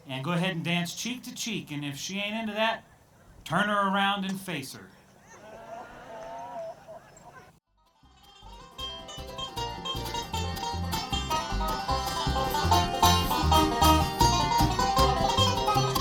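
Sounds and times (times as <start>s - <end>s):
bluegrass band playing: 8.1s - 16.0s
steady bass line: 8.4s - 16.0s.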